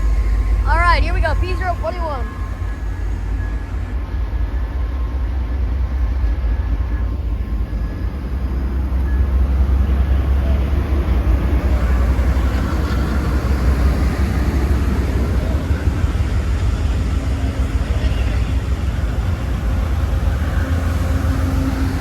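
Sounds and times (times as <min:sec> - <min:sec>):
faint high tones: 0:00.0 - 0:08.3
train diesel rumble: 0:00.0 - 0:22.0.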